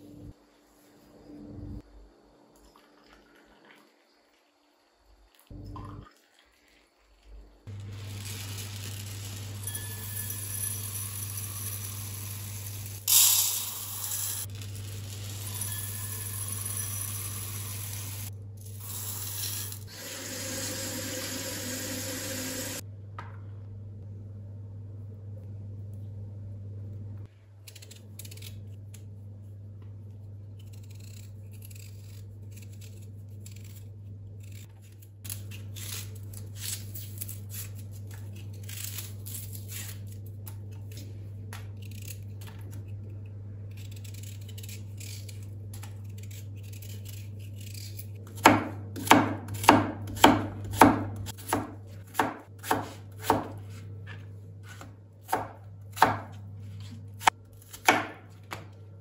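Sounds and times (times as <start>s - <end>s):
steady low hum: 0.0s - 2.6s, 10.9s - 35.3s
knife chopping on cutting board: 48.3s - 58.7s
rustling of kitchen things: 52.7s - 55.3s, 56.2s - 59.0s.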